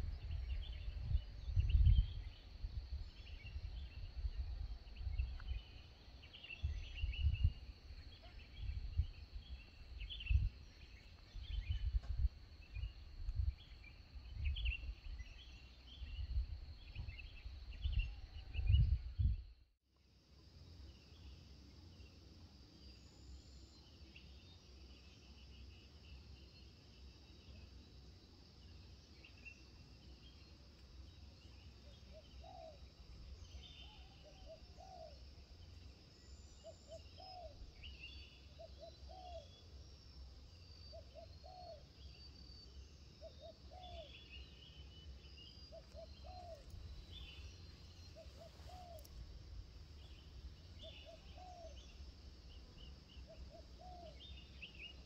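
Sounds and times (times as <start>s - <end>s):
birds chirping: 40.4s - 55.0s.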